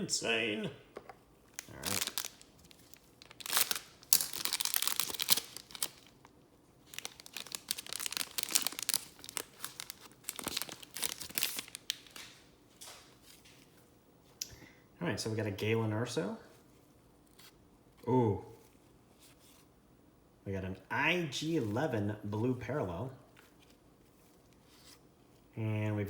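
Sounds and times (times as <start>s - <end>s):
plastic wrapping crinkling: 1.5s - 13.7s.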